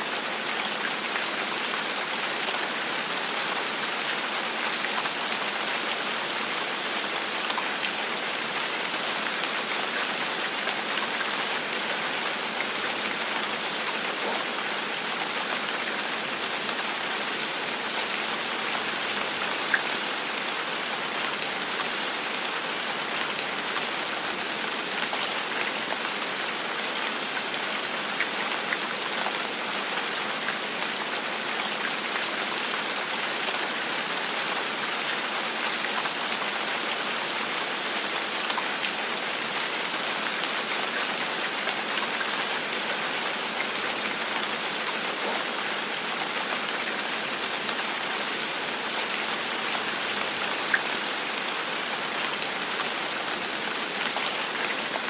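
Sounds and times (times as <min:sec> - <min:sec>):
rain pattering: 0:00.1 - 0:55.0.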